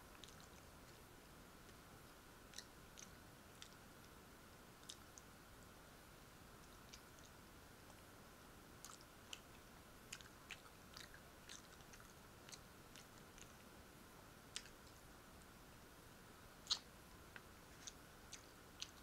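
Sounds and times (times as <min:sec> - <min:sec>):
faint chewing and mouth clicks: 0:00.0 - 0:04.2, 0:04.8 - 0:05.4, 0:06.6 - 0:08.1, 0:08.8 - 0:13.7, 0:14.5 - 0:15.6, 0:16.6 - 0:19.0
low hiss: 0:00.0 - 0:19.0.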